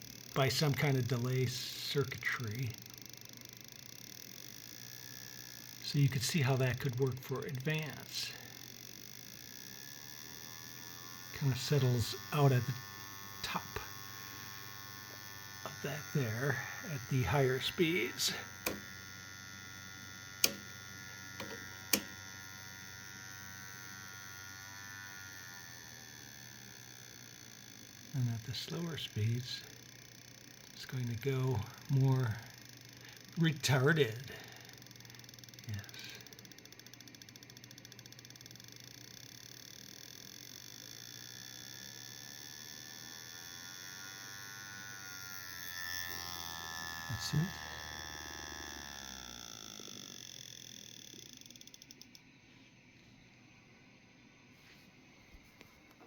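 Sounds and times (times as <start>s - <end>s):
sharp clicks: 0.0s - 41.2s, 48.9s - 52.3s
electric motor buzzing: 0.0s - 52.2s.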